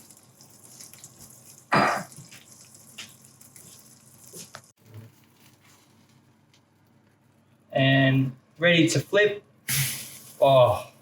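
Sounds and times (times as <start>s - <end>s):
batter sizzling in a frying pan: 0.0s - 7.2s.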